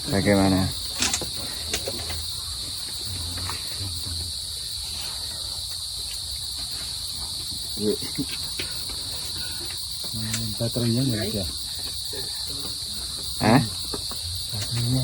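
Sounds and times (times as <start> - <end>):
shrill insect chorus: 0.0 - 15.0
faint ticks and taps: 5.7 - 15.0.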